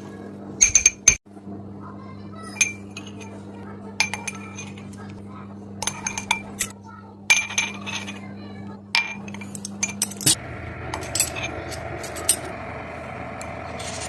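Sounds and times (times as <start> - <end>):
steady low hum: 0.0 - 14.0
metal spoon clinking against bowl: 4.0 - 4.9, 5.8 - 6.7, 7.3 - 8.2.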